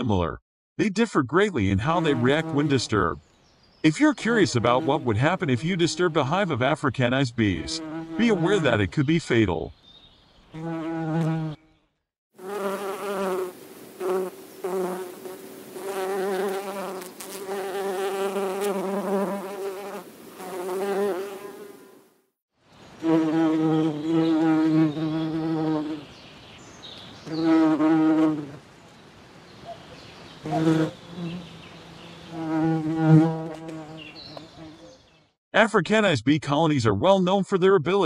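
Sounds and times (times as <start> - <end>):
bees buzzing: 10.6 - 11.7, 12.4 - 22.0, 22.9 - 26.2, 27.2 - 28.6, 30.3 - 34.8.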